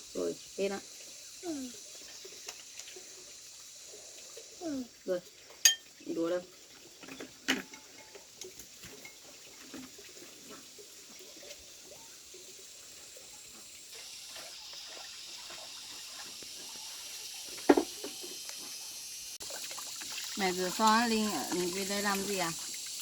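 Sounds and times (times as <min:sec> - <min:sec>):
dishes clinking: 0:05.6 - 0:06.0, 0:07.0 - 0:09.9
tap running: 0:17.5 - 0:18.8.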